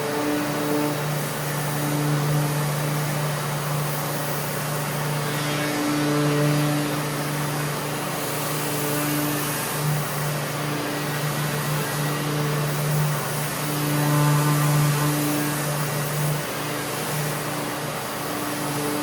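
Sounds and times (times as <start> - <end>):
dust extraction vacuum hissing: 0.0 - 19.0
electric sander humming: 0.0 - 19.0.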